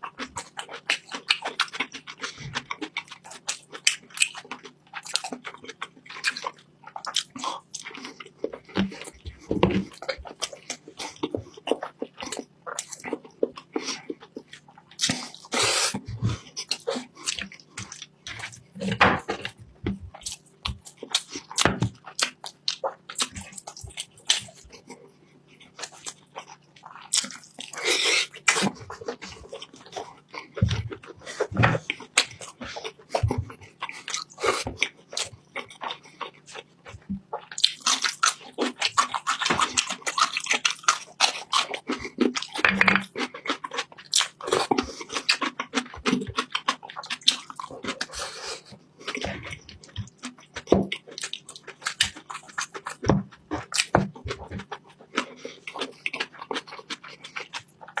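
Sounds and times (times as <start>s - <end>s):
chewing food: 0.0s - 58.0s.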